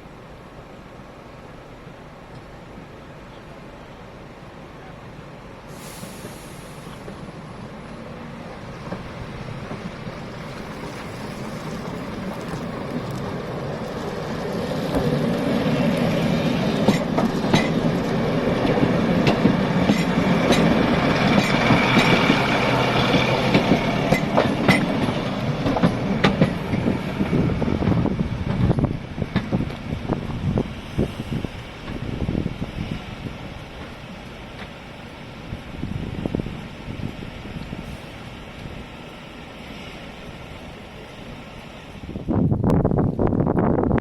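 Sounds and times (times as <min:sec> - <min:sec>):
train rumbling past: 0:00.0 - 0:44.0
wheels clattering over rail joints: 0:16.5 - 0:30.4.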